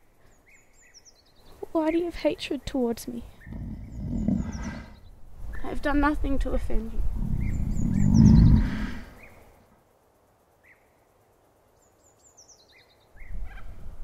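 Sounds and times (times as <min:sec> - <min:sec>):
songbirds singing: 0:00.0 - 0:09.7, 0:10.6 - 0:13.8
low rumble: 0:06.8 - 0:09.4.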